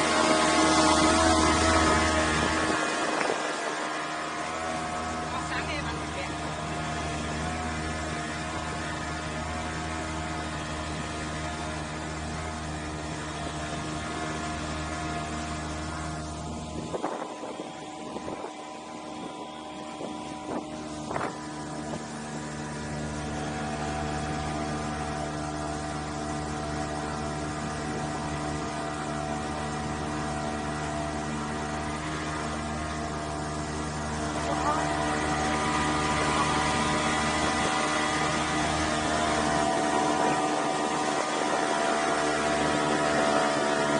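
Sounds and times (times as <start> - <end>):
small engine humming: 0.0 - 43.9.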